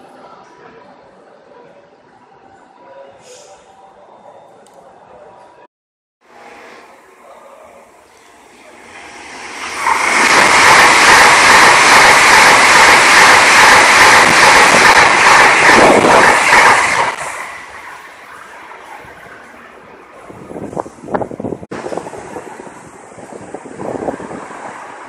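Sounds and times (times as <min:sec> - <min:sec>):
train rushing past: 0:06.3 - 0:25.0.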